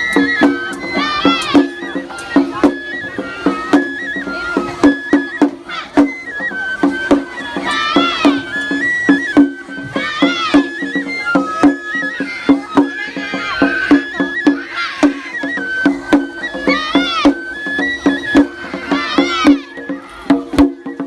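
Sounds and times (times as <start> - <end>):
drum strikes: 0.0 - 21.0
high bamboo flute melody: 0.0 - 21.0.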